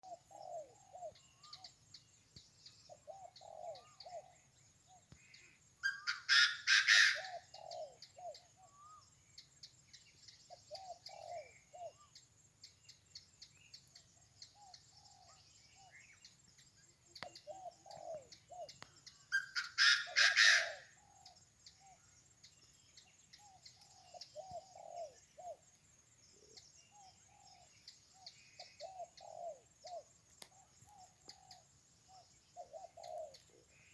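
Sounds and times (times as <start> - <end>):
low bird calls: 0.0 - 9.1, 9.9 - 12.2, 13.7 - 25.7, 26.3 - 33.9
loud harsh bird calls: 5.8 - 7.9, 19.3 - 21.2
birds chirping: 9.8 - 33.9.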